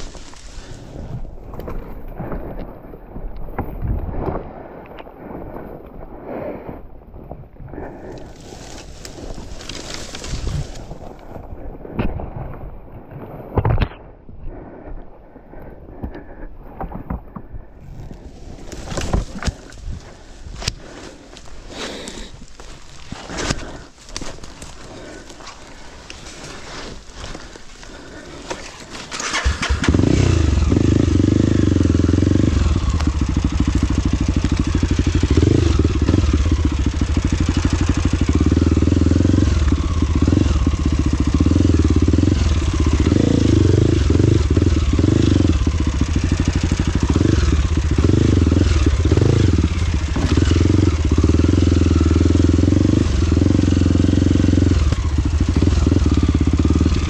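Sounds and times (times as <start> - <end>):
motorcycle engine running: 7.7 - 11.9, 18.0 - 57.0.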